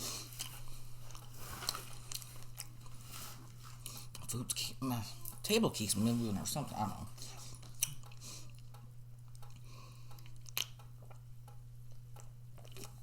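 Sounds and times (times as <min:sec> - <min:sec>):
person chewing food: 0:00.0 - 0:04.2, 0:07.2 - 0:11.3, 0:11.9 - 0:13.0
steady low hum: 0:00.0 - 0:13.0.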